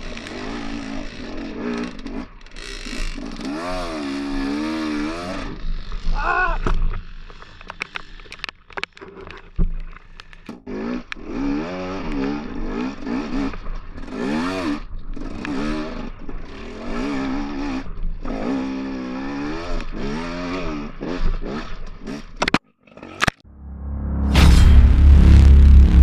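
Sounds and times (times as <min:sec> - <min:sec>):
dirt bike engine revving: 0:00.0 - 0:06.2, 0:10.6 - 0:22.4.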